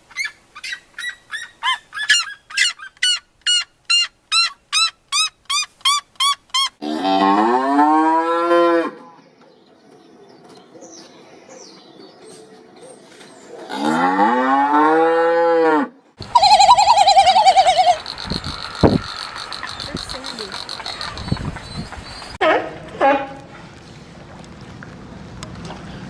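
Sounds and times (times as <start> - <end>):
cow mooing: 6.8 - 9.0, 13.7 - 15.9.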